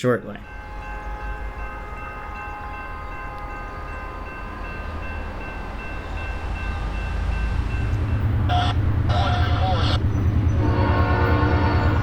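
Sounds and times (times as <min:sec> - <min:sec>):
train rumbling: 0:00.4 - 0:12.0
locomotive air horn: 0:08.5 - 0:10.0, 0:10.6 - 0:12.0.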